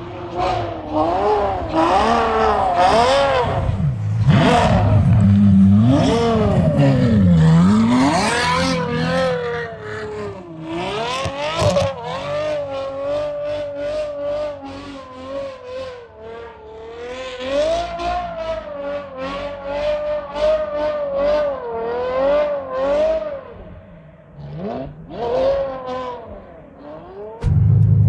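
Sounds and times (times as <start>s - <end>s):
car engine revving: 0.0s - 28.0s
sharp knocks: 27.4s - 28.0s.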